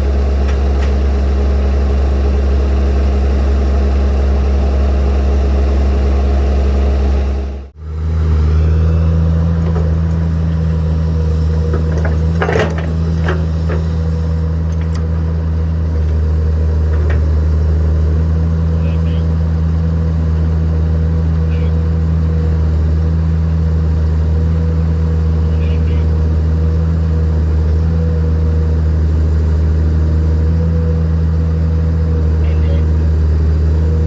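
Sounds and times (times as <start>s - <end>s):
heavy machine engine droning: 0.0s - 34.0s
short metallic knocks: 11.7s - 14.0s.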